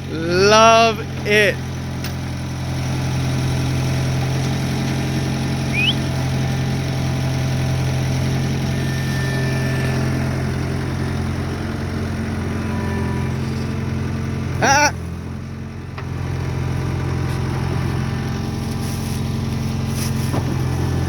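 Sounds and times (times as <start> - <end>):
skid steer engine running: 0.0 - 21.0
high rising chirp: 5.7 - 6.1.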